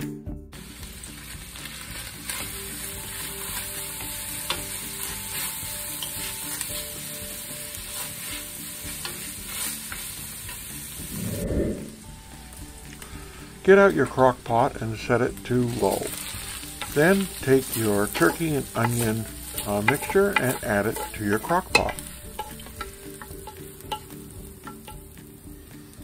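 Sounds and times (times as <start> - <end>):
meat sizzling in a frying pan: 0.6 - 11.2, 12.0 - 26.0
wooden spoon stirring: 15.6 - 24.1.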